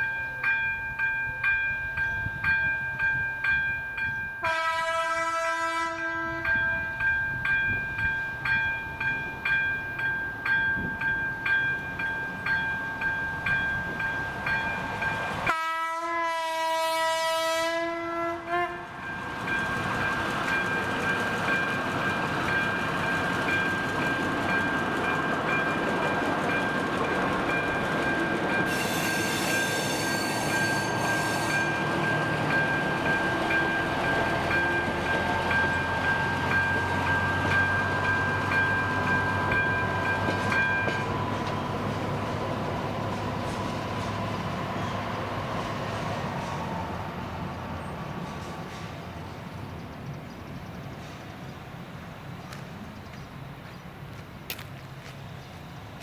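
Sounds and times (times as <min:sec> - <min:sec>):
train rumbling over crossing: 0:00.0 - 0:56.0
train horn blasts: 0:04.4 - 0:06.8, 0:15.5 - 0:19.0, 0:28.7 - 0:31.9
electric warning bell ringing: 0:19.0 - 0:42.4.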